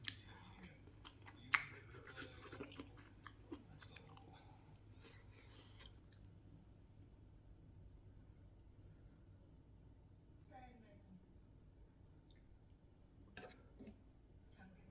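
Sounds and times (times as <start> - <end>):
crunchy chewing close-up: 0.0 - 6.4.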